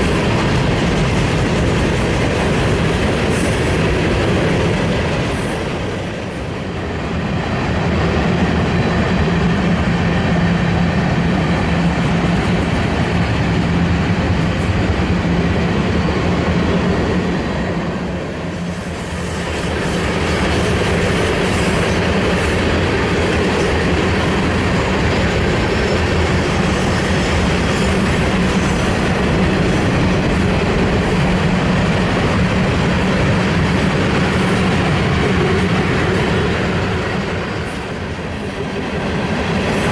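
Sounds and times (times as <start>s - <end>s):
clickety-clack of wheels: 0.0s - 6.8s, 18.6s - 39.9s
train wheels rumbling on rail: 0.0s - 39.9s.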